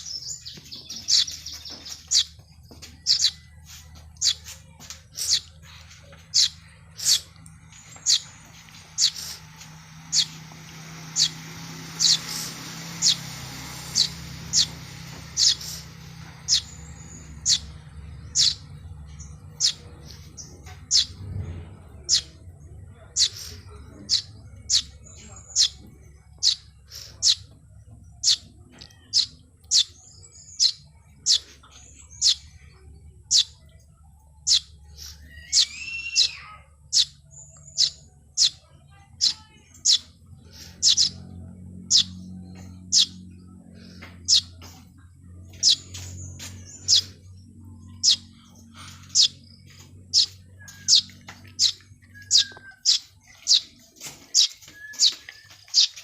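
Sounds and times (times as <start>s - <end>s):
low steady hum: 0.0s - 56.0s
small birds chirping: 0.0s - 56.0s
low curving bird call: 34.5s - 37.1s.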